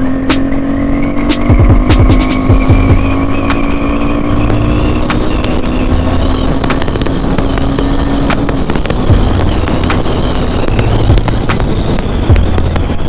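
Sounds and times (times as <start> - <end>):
heavy wind noise: 0.0 - 13.0
motorcycle engine running: 0.0 - 13.0
wind buffets on microphone: 0.0 - 13.0.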